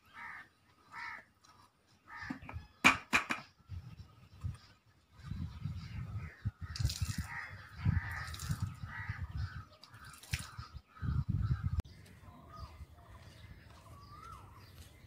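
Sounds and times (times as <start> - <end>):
birds calling: 0.0 - 15.0
thin bird chirps: 4.4 - 8.8, 9.7 - 11.4.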